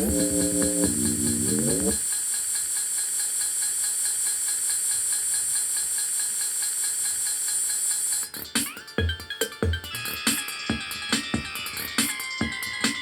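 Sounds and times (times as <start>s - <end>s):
faint even ticking: 0.0s - 2.0s
synth chord gliding upward: 0.0s - 2.0s.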